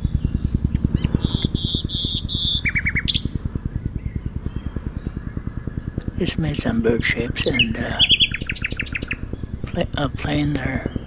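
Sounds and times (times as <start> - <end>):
helicopter rotors thudding: 0.0 - 11.0
nightingale singing: 1.0 - 3.4, 7.4 - 11.0.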